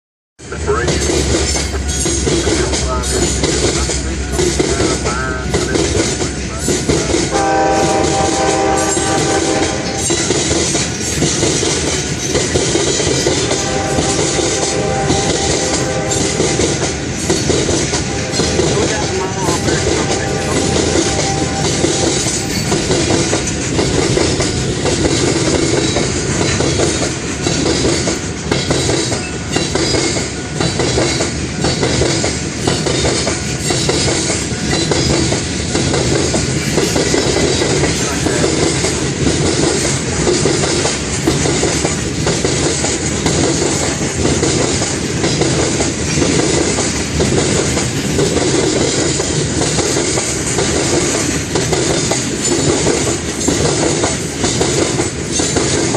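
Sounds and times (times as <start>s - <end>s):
freight train wheels clacking: 0.4s - 55.9s.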